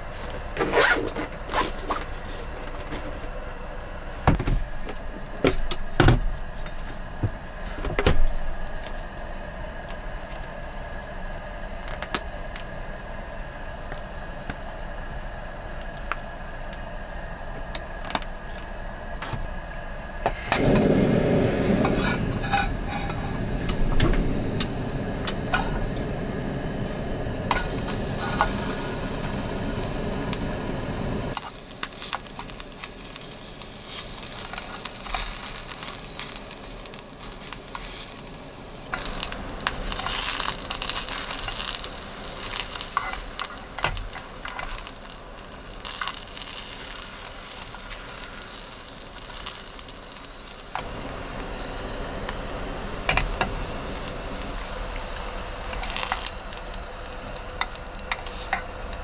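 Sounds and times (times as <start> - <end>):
eggplant sizzling in hot oil: 20.3 - 59.0.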